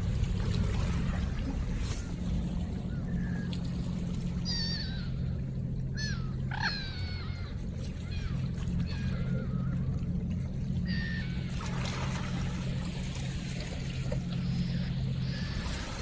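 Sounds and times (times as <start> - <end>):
low hum: 0.0 - 16.0
birds whistling calls: 4.4 - 9.9, 10.8 - 11.6, 14.3 - 16.0.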